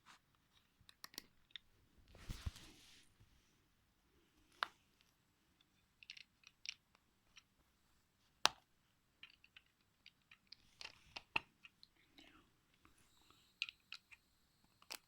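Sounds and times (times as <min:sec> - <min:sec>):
plastic parts clicking and rattling: 0:06.0 - 0:07.5.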